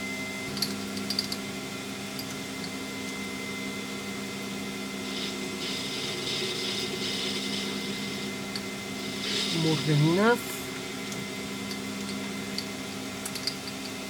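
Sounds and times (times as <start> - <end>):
machine spindle humming: 2.2 - 14.0.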